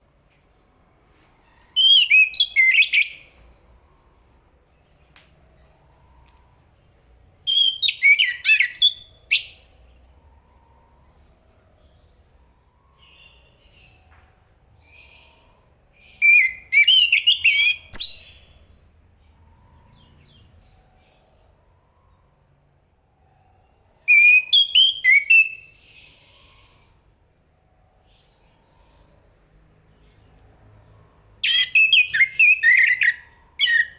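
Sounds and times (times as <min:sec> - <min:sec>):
thrush singing whistled notes: 0:01.8 - 0:14.0, 0:16.0 - 0:18.6, 0:23.9 - 0:26.8, 0:31.4 - 0:33.9.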